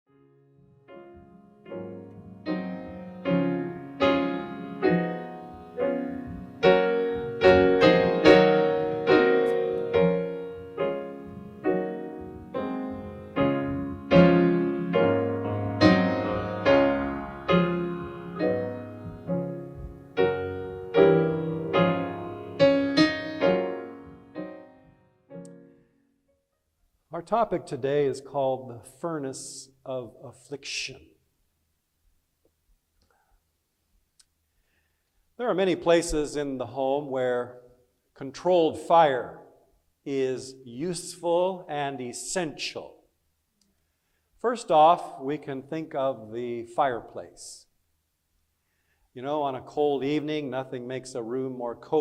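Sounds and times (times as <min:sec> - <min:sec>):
solo piano playing slow chords: 0:00.1 - 0:26.2.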